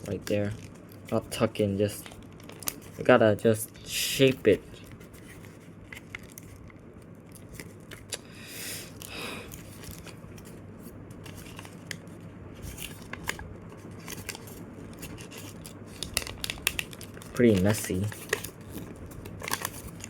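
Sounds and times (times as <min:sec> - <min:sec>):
paper crinkling: 0:00.0 - 0:08.2, 0:08.9 - 0:20.0
paper rustle: 0:04.0 - 0:08.1, 0:09.5 - 0:20.0.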